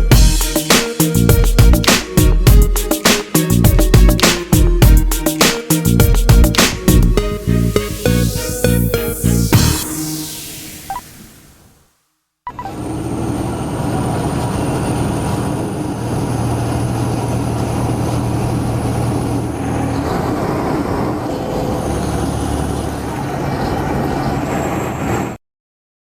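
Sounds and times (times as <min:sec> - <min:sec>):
truck engine rumbling: 0:00.0 - 0:10.2
thin high whine: 0:00.0 - 0:11.8.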